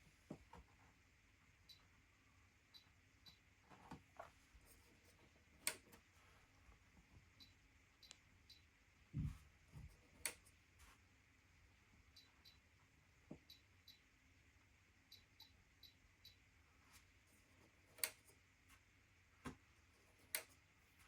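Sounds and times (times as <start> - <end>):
control panel clicks: 5.6 - 6.0, 18.0 - 18.3.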